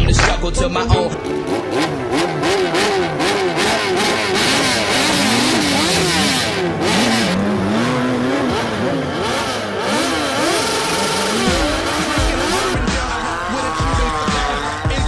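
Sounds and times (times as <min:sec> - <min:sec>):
motorcycle engines revving: 0:01.1 - 0:15.0.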